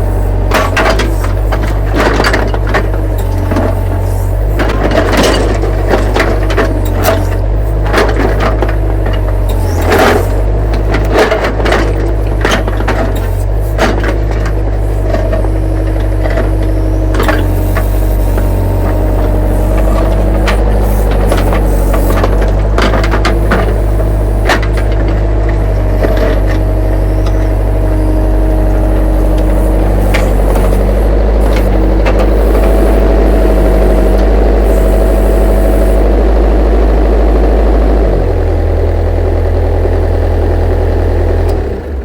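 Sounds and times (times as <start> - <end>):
wood and soil cracking: 0.0 - 36.2
excavator engine running: 0.0 - 42.0
hydraulic whine: 0.0 - 42.0.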